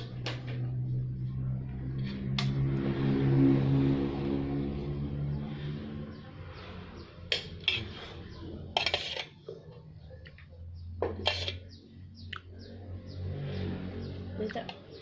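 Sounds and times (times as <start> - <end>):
dishes clinking and scraping: 7.3 - 11.8.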